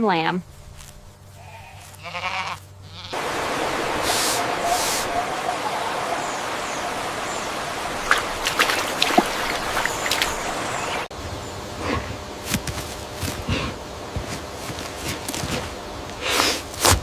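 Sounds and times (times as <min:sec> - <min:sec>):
steady rushing noise: 0:03.2 - 0:11.1.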